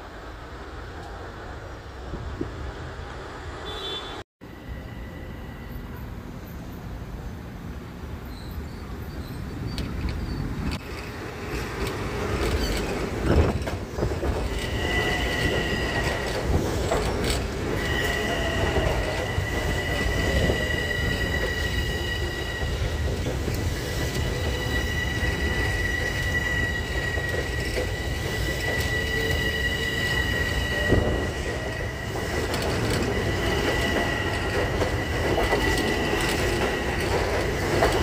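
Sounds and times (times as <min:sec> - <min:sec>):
train passing through station: 0:00.0 - 0:38.0
high wheel squeal: 0:14.4 - 0:16.9, 0:17.7 - 0:38.0.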